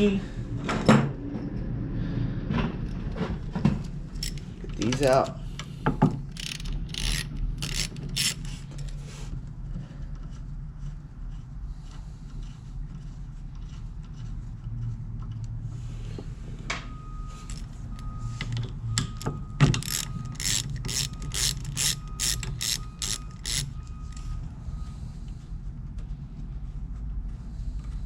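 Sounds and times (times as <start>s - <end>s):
ratchet wrench clicking: 4.1s - 5.3s, 6.3s - 8.9s, 19.1s - 24.2s.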